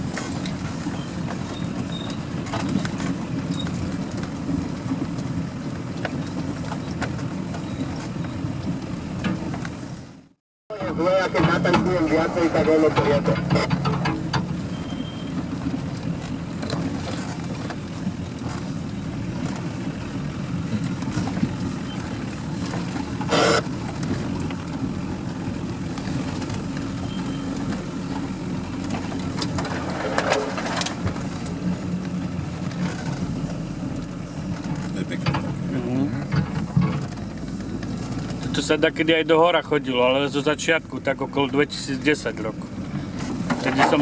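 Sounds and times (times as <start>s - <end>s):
vehicle engine running: 0.0s - 44.0s
knocks and rattles: 12.9s - 14.6s.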